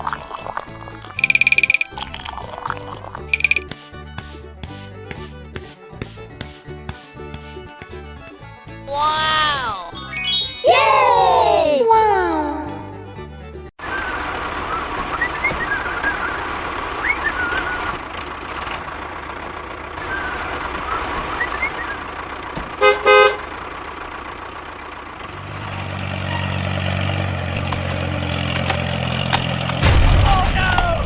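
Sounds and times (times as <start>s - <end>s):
faint high chirps: 1.2s - 1.9s, 3.4s - 3.6s
vehicle horn toots: 22.7s - 23.6s.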